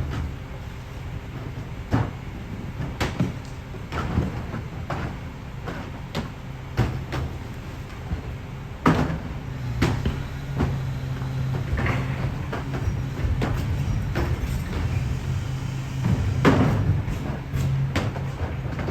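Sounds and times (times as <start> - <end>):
garbage truck engine hum: 0.0 - 18.9
sharp knocks and bangs: 8.8 - 18.9.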